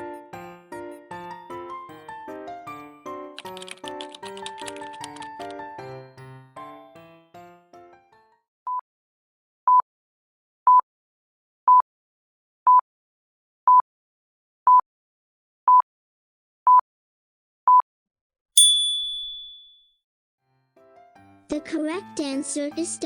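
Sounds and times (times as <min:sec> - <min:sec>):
jingle of falling notes: 0:18.6 - 0:19.8.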